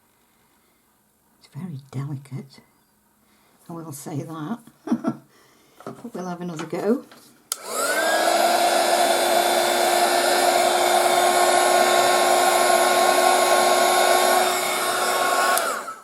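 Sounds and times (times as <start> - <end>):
electric blower motor whine: 7.5 - 16.0.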